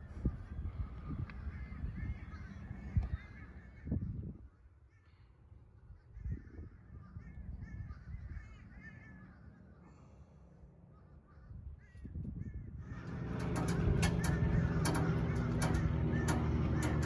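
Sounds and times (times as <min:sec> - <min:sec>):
bird harsh calls: 0:05.9 - 0:17.0
steady low rumble: 0:07.0 - 0:17.0.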